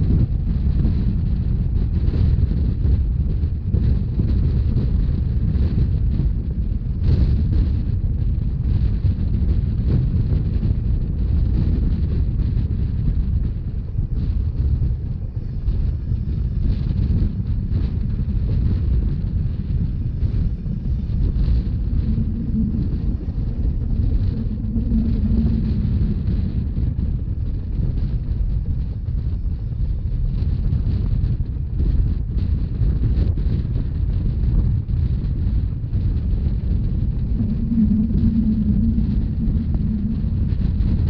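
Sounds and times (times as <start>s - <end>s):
train rumbling: 0.0s - 41.0s
wind buffeting microphone: 0.0s - 41.0s.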